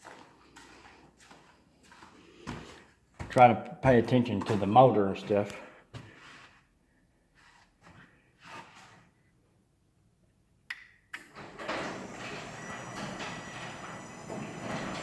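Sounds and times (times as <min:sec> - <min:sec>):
garage door opener click: 0:11.2 - 0:15.0
garage door rollers rumbling: 0:11.3 - 0:15.0.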